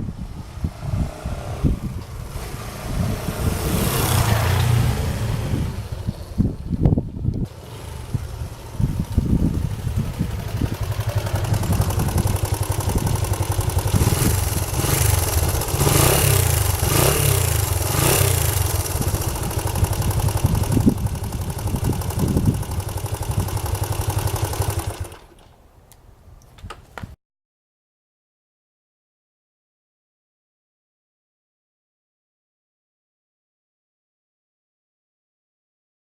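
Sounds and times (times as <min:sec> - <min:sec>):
motorcycle engine running: 0:01.7 - 0:25.4.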